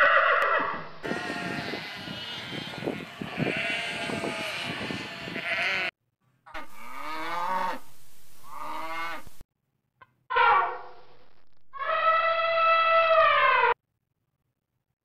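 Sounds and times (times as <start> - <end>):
sheep bleating: 0.6 - 5.9, 6.5 - 9.4.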